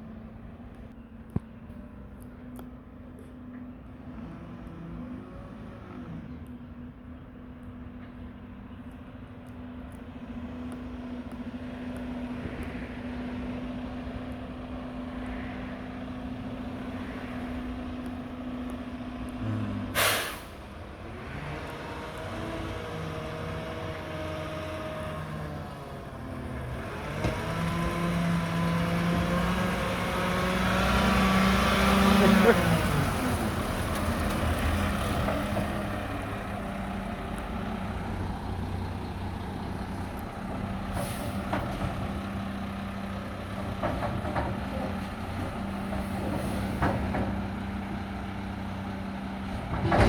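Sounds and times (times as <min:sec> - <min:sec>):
garbage truck diesel engine: 0:01.8 - 0:50.0
air brake hiss: 0:19.9 - 0:20.7, 0:41.0 - 0:41.5.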